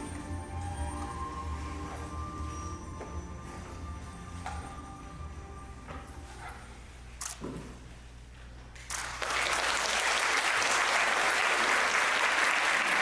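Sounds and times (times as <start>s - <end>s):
audience applause: 9.0s - 13.0s.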